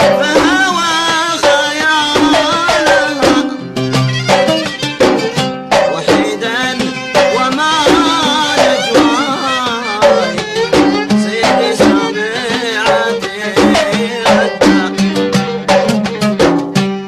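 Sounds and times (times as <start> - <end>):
hand drums in steady rhythm: 0.0 - 17.0
ornamented violin melody: 3.5 - 17.0.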